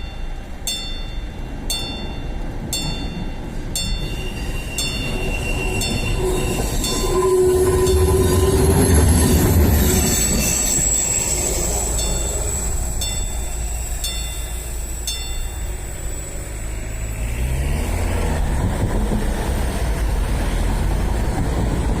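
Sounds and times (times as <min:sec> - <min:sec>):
crossing bell: 0:00.0 - 0:18.2
railcar engine rumble: 0:00.0 - 0:22.0
high wheel squeal: 0:03.8 - 0:18.4
train horn: 0:05.4 - 0:09.2.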